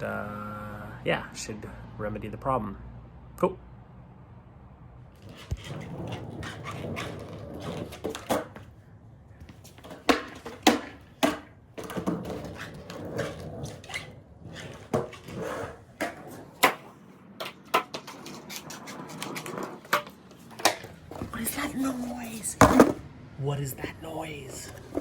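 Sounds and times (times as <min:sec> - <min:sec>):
skateboard trucks creaking and squeaking: 0:05.2 - 0:23.0, 0:24.4 - 0:25.0.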